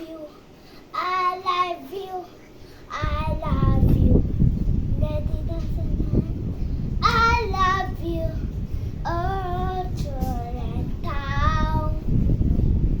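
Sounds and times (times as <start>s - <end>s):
steady low rumbling noise: 0.0s - 13.0s
child singing wavering notes: 9.1s - 12.1s.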